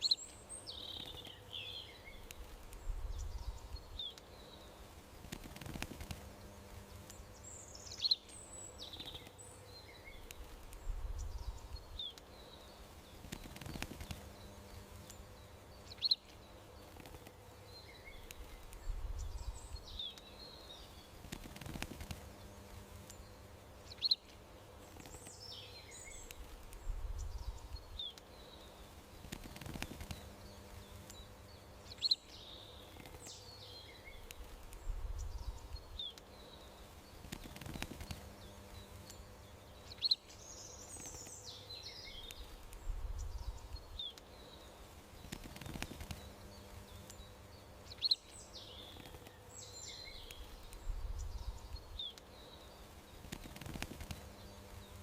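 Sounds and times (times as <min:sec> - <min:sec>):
faint steady hum: 0:00.0 - 0:55.0
songbirds chirping: 0:00.0 - 0:55.0.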